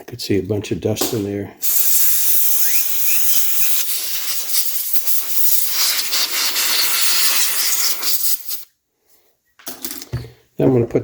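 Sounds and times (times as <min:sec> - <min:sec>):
compressed air hissing: 0:01.6 - 0:08.7.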